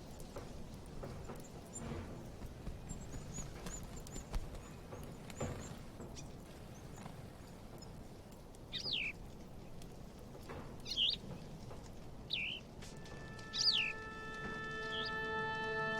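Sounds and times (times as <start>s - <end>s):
held music chord: 12.9s - 15.9s.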